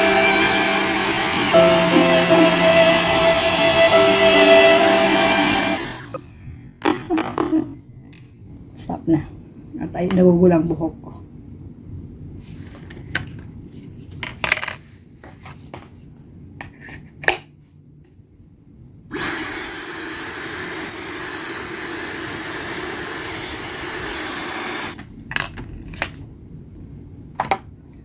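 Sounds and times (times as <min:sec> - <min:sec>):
hair dryer blowing: 0:00.0 - 0:06.2, 0:19.1 - 0:25.0.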